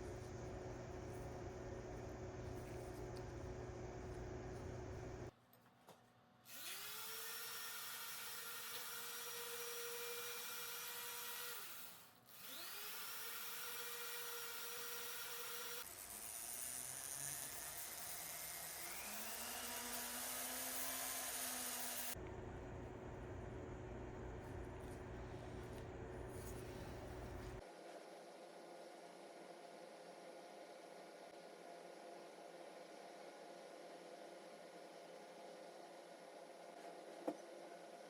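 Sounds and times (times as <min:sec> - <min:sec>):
power tool motor whining: 0:06.5 - 0:22.2.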